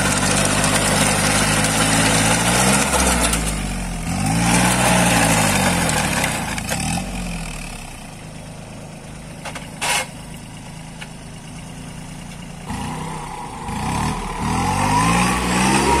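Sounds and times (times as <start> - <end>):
tractor diesel engine: 0.0 - 16.0
short rushing noise: 12.6 - 16.0.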